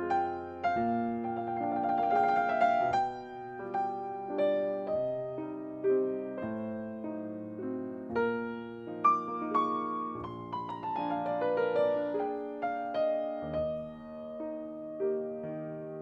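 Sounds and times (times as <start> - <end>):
solo piano melody: 0.0 - 16.0.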